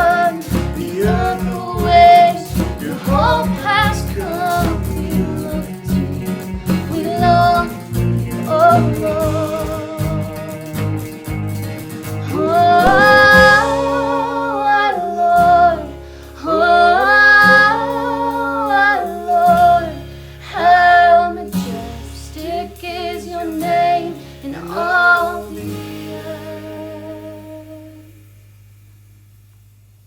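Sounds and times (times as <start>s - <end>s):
woman singing worship song: 0.0s - 10.6s, 12.2s - 28.2s
band accompaniment: 0.0s - 20.4s.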